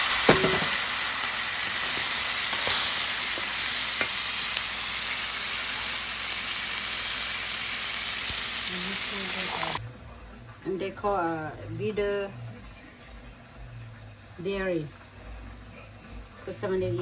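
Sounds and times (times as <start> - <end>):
meat sizzling in hot pan: 0.0 - 9.8.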